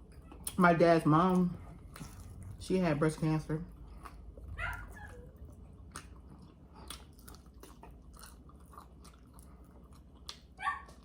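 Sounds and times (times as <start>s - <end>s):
person chewing and biting: 1.7s - 2.6s, 3.7s - 11.0s.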